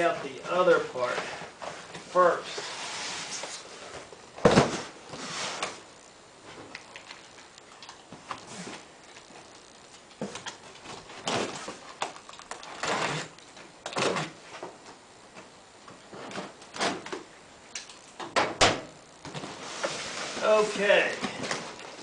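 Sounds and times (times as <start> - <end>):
packaging rustling and scraping: 8.1 - 14.4.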